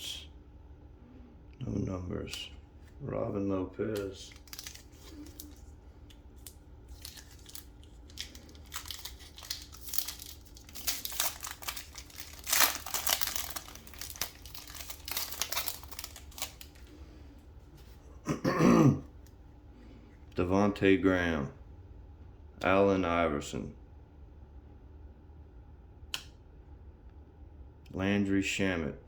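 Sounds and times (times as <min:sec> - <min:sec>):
foil wrapper tearing and crinkling: 0:04.3 - 0:05.7, 0:06.4 - 0:16.9.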